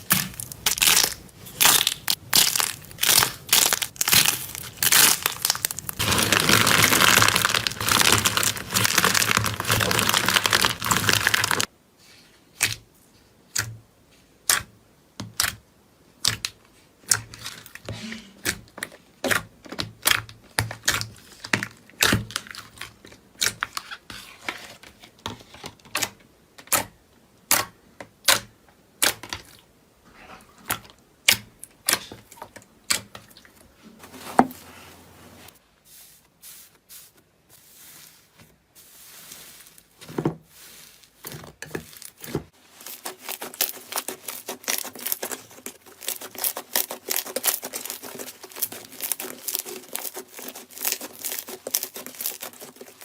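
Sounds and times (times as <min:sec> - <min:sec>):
crunchy material crushed by hand: 0:00.0 - 0:11.7, 0:39.6 - 0:53.0.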